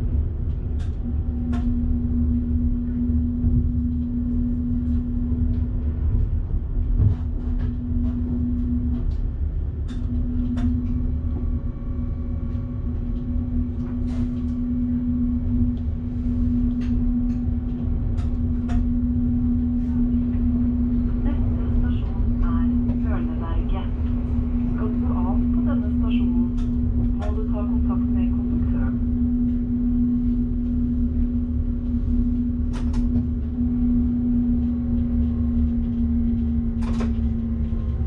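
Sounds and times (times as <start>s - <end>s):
train rumbling: 0.0s - 38.0s
electric hum: 7.6s - 38.0s.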